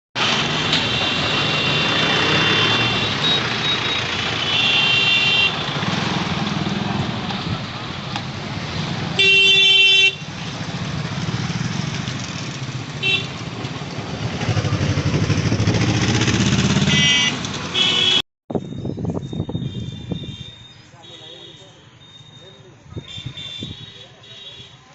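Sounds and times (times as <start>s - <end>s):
horn honking: 0.2s - 6.2s, 9.2s - 10.4s, 12.9s - 13.5s, 16.6s - 18.2s, 19.3s - 24.9s
vehicle engines running: 0.2s - 23.0s.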